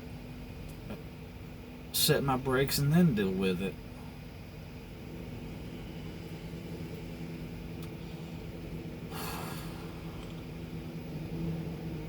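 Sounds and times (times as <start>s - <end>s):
low machine hum: 0.0s - 12.0s
person sniffing: 9.1s - 10.3s.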